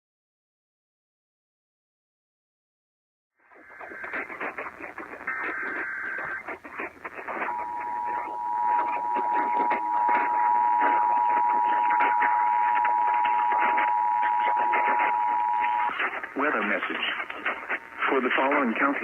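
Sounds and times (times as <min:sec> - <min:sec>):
radio static and crackle: 0:03.4 - 0:19.0
buzzing digital header bursts: 0:03.6 - 0:16.7
two-tone attention signal: 0:07.3 - 0:16.0.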